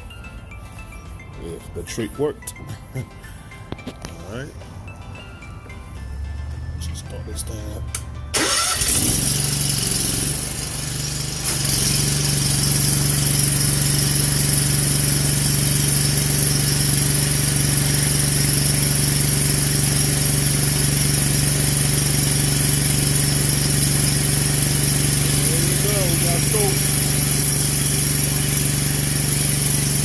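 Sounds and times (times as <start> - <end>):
pressure washer engine running: 8.3 - 30.0.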